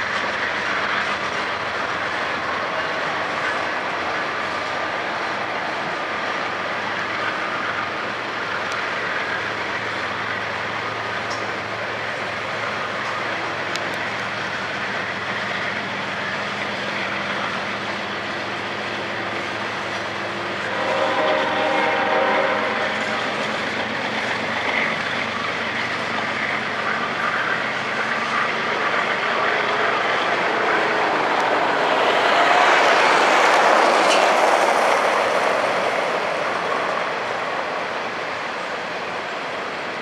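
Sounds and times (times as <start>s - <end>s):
train wheels rumbling on rail: 0.0s - 40.0s
train horn chord: 20.5s - 23.1s.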